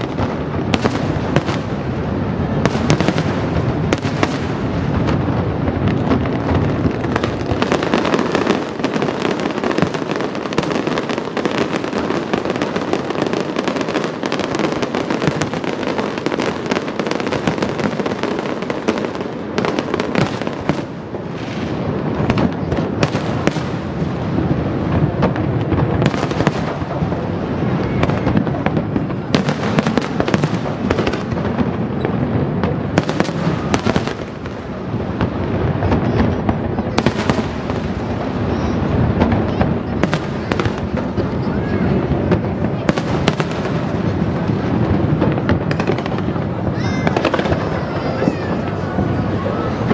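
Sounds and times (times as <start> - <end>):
fireworks crackling and popping: 0.0 - 49.9.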